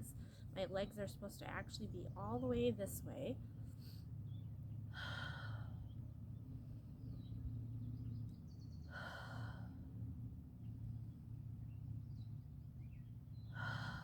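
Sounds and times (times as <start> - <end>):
steady low hum: 0.0 - 14.0
person breathing deeply: 13.6 - 14.0.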